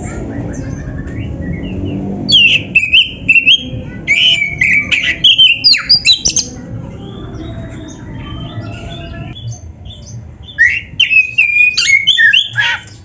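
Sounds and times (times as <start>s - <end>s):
bird singing whistled notes: 0.3s - 6.5s, 8.4s - 13.0s.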